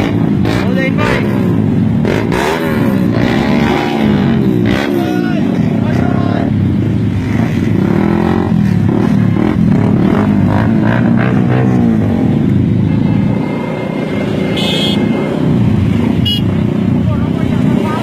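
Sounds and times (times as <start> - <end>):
motorcycle engines revving: 0.0 - 18.0.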